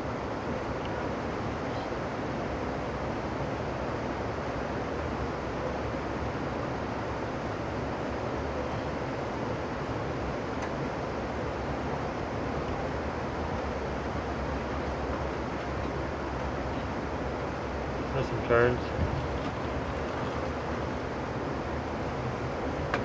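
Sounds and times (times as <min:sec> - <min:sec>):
moving train rumble: 0:12.3 - 0:23.0.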